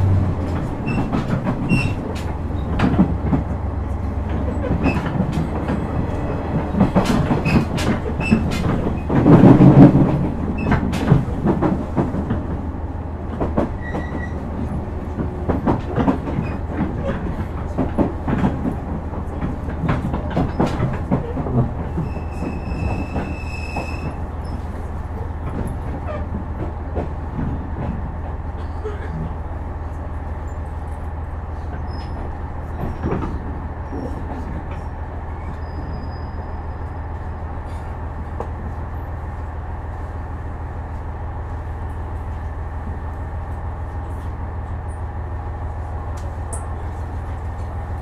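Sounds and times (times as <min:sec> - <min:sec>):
wheels clicking over rail joints: 0:00.0 - 0:12.6, 0:13.2 - 0:35.9
railcar interior hum: 0:00.0 - 0:48.0.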